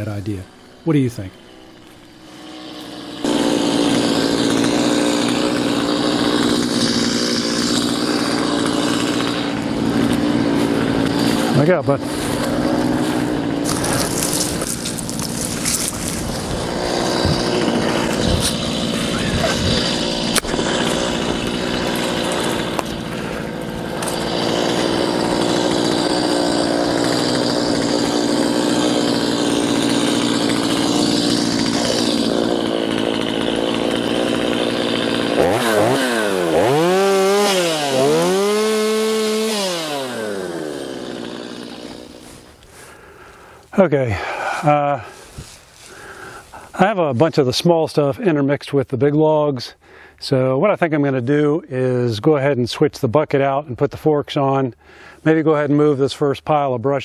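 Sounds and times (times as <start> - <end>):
chainsaw cutting wood: 0.0 - 46.9
chainsaw revving: 1.3 - 46.6.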